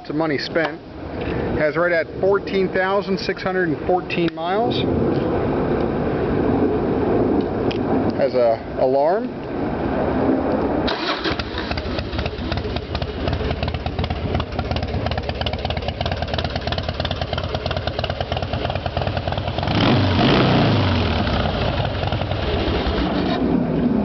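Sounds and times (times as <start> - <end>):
motorcycle engine idling and revving: 11.0 - 24.0.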